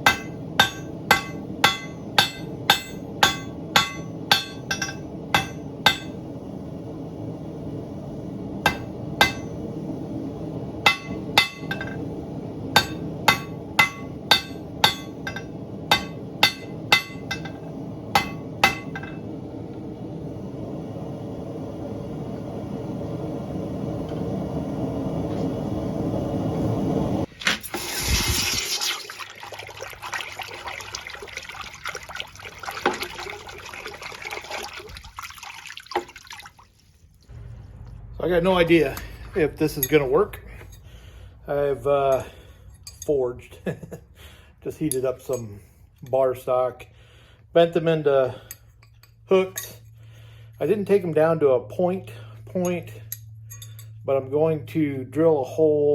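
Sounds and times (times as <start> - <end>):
hammer blows ringing on steel: 0.0 - 6.2, 8.7 - 9.6, 10.9 - 12.0, 12.8 - 17.6
loud hiss of quenching: 0.0 - 29.0, 37.3 - 43.5
water trickling: 27.4 - 37.4
steady rushing noise: 37.3 - 42.0.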